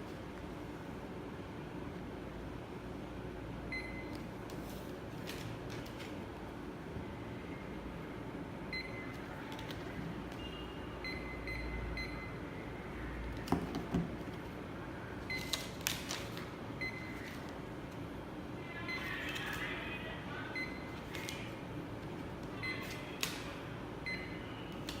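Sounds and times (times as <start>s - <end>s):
barcode scanner beeps: 10.4s - 12.4s, 24.0s - 25.0s.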